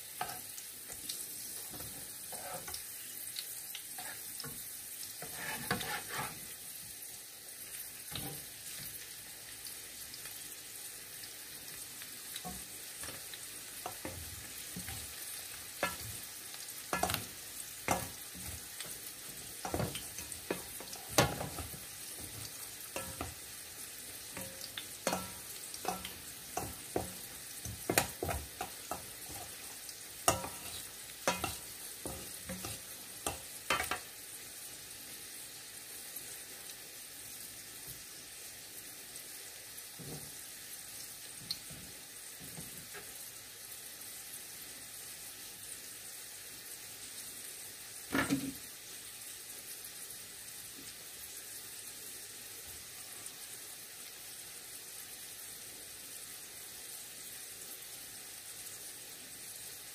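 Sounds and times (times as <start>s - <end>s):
fritters sizzling in oil: 0.0s - 59.9s
utensils scraping in metal bowl: 2.3s - 2.8s, 5.2s - 6.4s.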